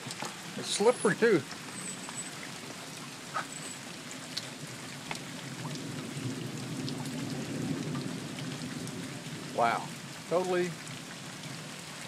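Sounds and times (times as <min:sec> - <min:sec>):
rain and hail falling: 0:00.0 - 0:12.0
sharp hail ticks: 0:04.3 - 0:05.9.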